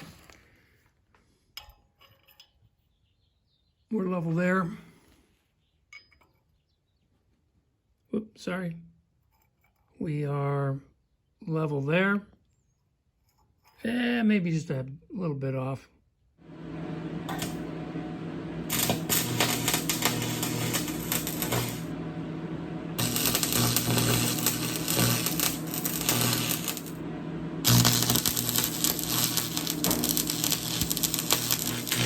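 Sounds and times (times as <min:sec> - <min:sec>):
arc welding crackling sizzle: 0:16.4 - 0:32.0
low electrical hum: 0:16.4 - 0:32.0.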